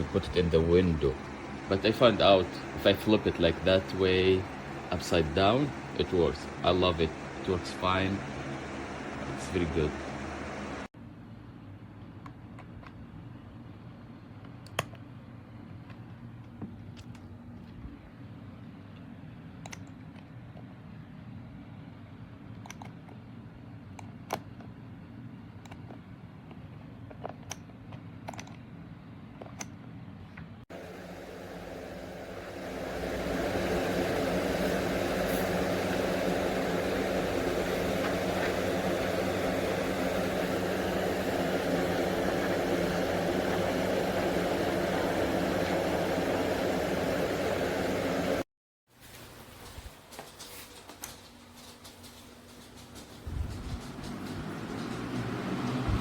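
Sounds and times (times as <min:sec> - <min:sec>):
box fan motor hum: 0:00.0 - 0:10.9, 0:30.7 - 0:48.5, 0:49.1 - 0:56.0.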